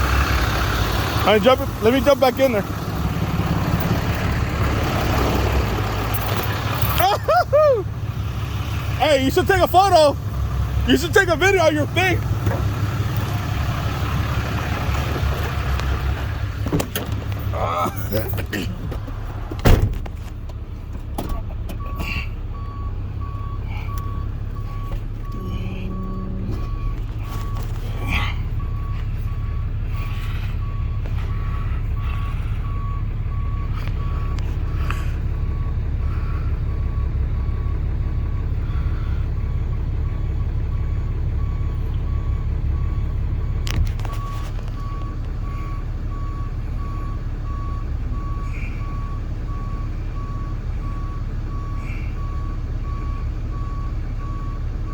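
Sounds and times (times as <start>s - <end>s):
truck engine rumbling: 0.0s - 54.9s
reversing alarm beeping: 21.3s - 54.9s.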